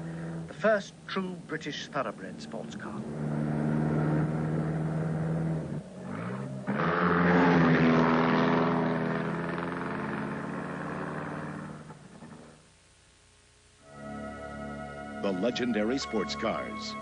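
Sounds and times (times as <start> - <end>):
car engine running hard: 1.7 - 12.6.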